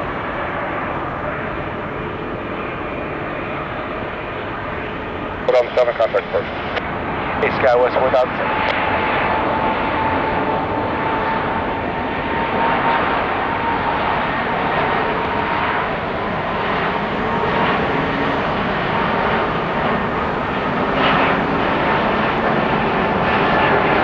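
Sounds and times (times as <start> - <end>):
jet airliner roaring: 0.0 - 24.0.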